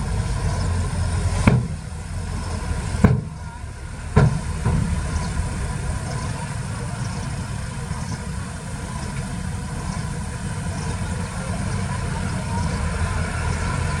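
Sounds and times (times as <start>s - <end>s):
diesel engine running: 0.0s - 14.0s
sharp knock: 3.0s - 3.4s, 4.2s - 5.0s.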